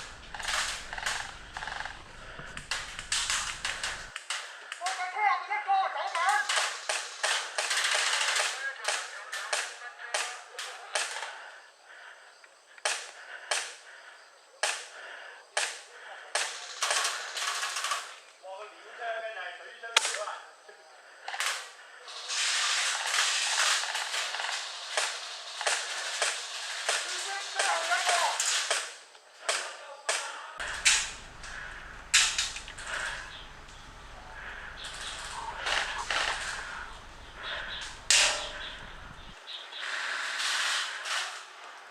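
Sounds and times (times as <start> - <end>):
airsoft guns firing: 0.0 - 4.4, 22.6 - 28.9, 30.6 - 39.4
steady hiss: 0.0 - 4.7, 30.6 - 41.9
airsoft gun shots cracking: 30.6 - 39.4.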